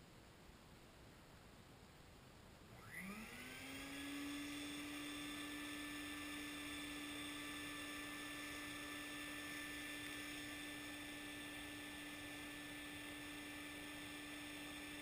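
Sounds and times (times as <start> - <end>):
shop vacuum motor whining: 2.7 - 15.0.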